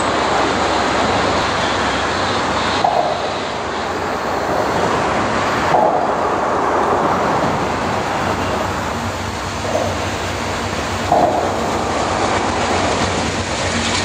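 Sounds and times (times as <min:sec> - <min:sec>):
freight train rumbling: 0:00.0 - 0:14.0
outdoor noise: 0:00.0 - 0:14.0.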